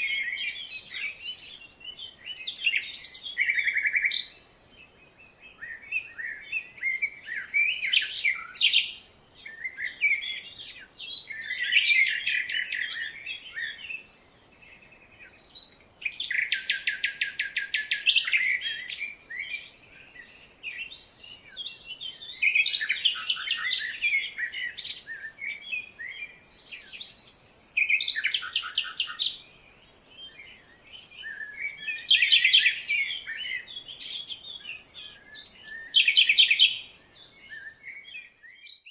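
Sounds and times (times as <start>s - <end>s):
birds chirping and warbling: 0.0s - 38.9s.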